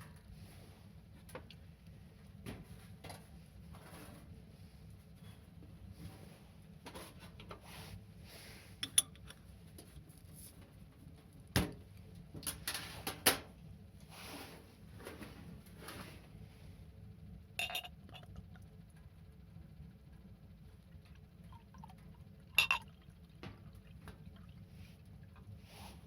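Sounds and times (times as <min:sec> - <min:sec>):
dishes clinking: 0:17.6 - 0:18.3, 0:22.6 - 0:22.9.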